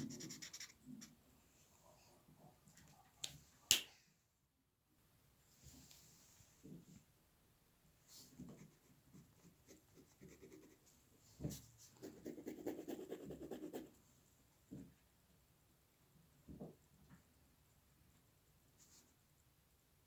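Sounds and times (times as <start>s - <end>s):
pencil strokes on paper: 0.0s - 1.1s, 8.1s - 10.9s, 11.8s - 14.0s.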